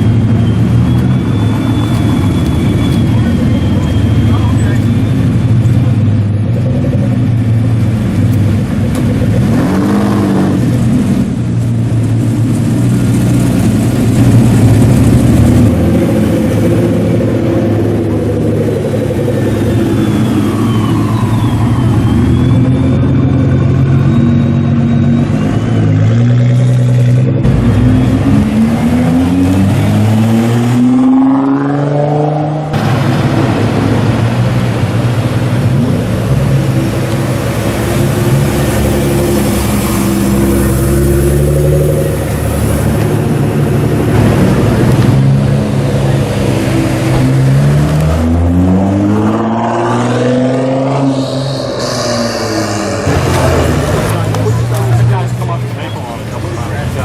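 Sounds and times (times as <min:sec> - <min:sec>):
sports car engines revving: 0:00.0 - 0:57.0.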